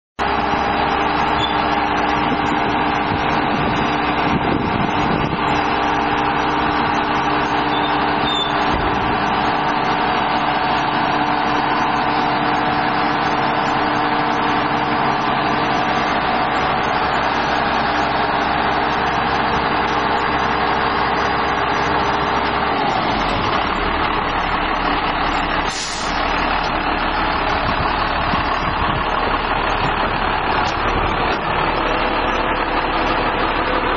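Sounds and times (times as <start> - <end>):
diesel truck engine running: 0.2 - 33.9
brief hiss: 25.7 - 26.2.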